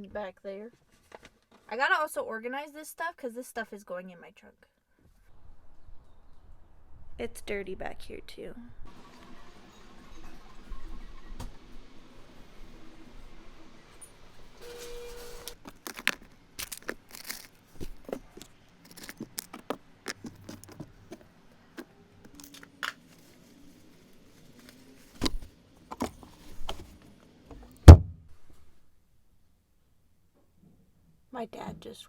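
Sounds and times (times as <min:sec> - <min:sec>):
loud heavy thump: 0:27.9 - 0:28.3.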